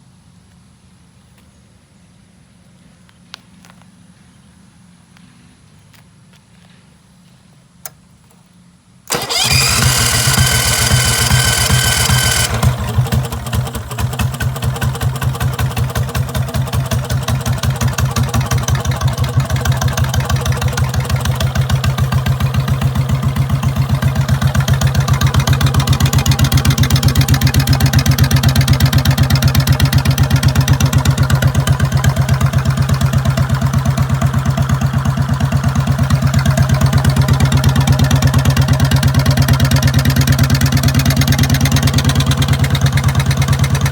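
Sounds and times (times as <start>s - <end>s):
engine idling: 9.1s - 43.9s.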